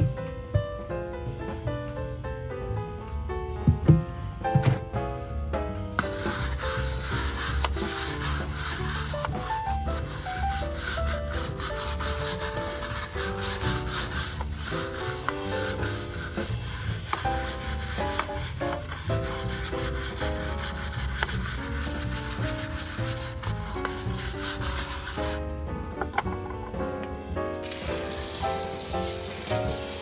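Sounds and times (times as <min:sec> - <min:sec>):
shaker-like rhythm: 0:06.0 - 0:25.4, 0:27.6 - 0:30.0.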